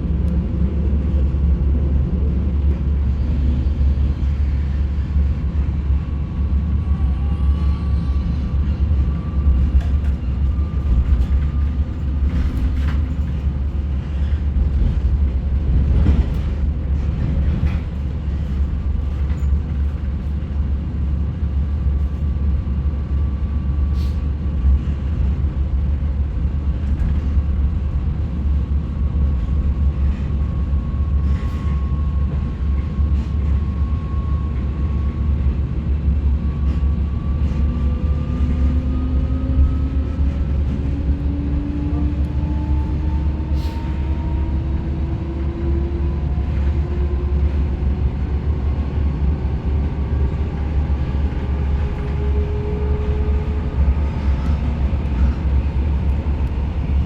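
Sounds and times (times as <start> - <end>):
train rumble: 0.0 - 57.0
wavering train whine: 30.5 - 57.0.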